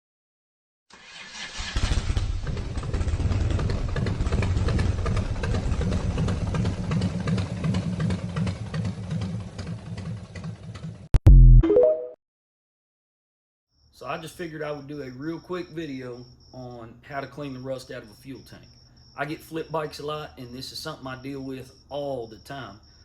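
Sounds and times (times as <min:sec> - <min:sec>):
motorcycle engine running: 0:02.2 - 0:11.1.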